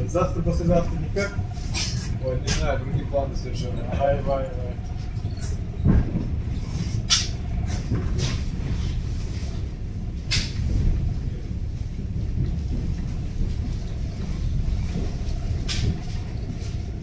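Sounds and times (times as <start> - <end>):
train rumbling inside carriage: 0.0 - 17.0
sharp clacks and rattles: 4.4 - 17.0.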